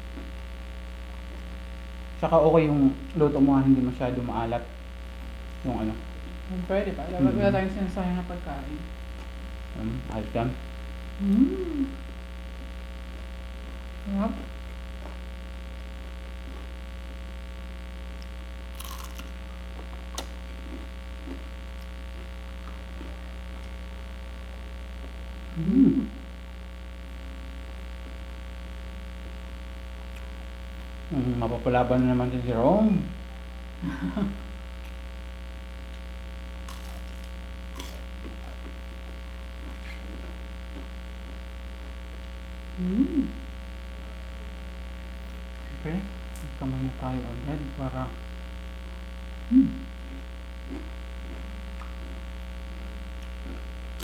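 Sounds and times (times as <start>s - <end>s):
electrical hum: 0.0s - 54.0s
crunchy chewing: 9.0s - 10.1s, 11.3s - 17.4s, 18.0s - 25.6s, 34.6s - 46.6s, 48.6s - 54.0s
soft mouth sounds: 9.1s - 15.3s, 18.2s - 24.0s, 24.6s - 26.6s, 35.9s - 46.6s, 49.3s - 54.0s
person humming mmm: 9.8s - 10.1s, 11.2s - 12.1s, 25.4s - 26.4s, 42.7s - 43.6s, 49.4s - 51.0s.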